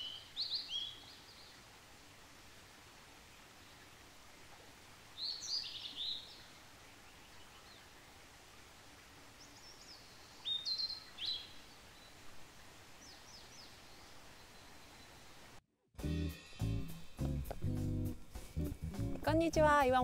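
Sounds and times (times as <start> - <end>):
birds chirping: 0.0 - 1.6, 5.2 - 7.9, 9.4 - 12.3
faint outdoor hiss: 0.0 - 20.0.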